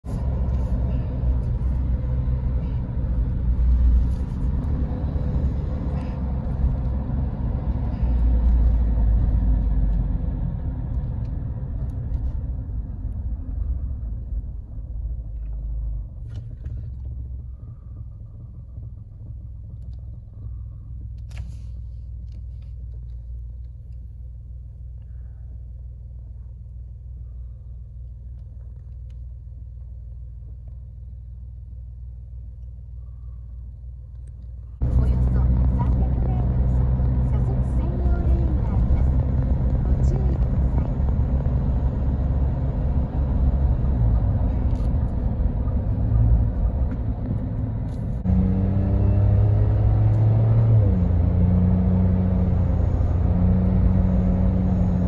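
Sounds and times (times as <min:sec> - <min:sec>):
engine idling: 0:00.0 - 0:48.3
car engine and road rumble: 0:00.0 - 0:55.0.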